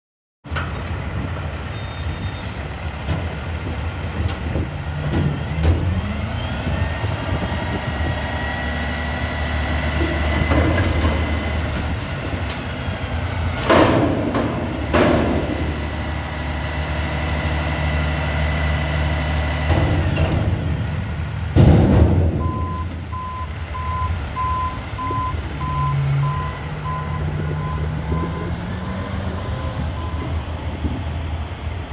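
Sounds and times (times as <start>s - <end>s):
garbage truck engine running: 0.5s - 31.9s
loud metal bangs: 13.5s - 16.2s, 19.6s - 23.1s
reversing alarm beeping: 22.4s - 30.4s.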